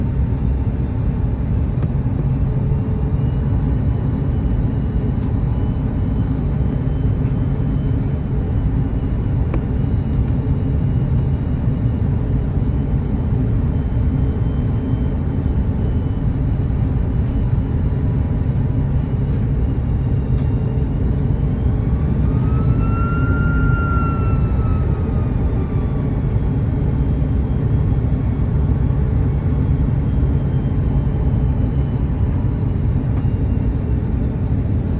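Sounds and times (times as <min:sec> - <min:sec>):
airflow and jet engine rumble: 0:00.0 - 0:34.9
rising whine: 0:19.7 - 0:34.4.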